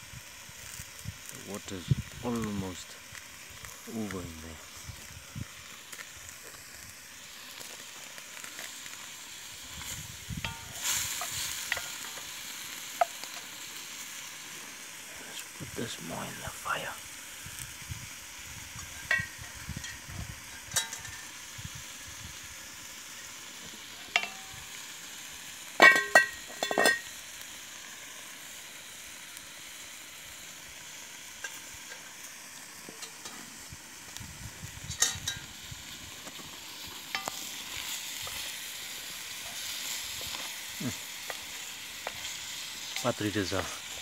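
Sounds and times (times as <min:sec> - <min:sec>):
birds sizzling in a pot: 0:00.0 - 0:44.0.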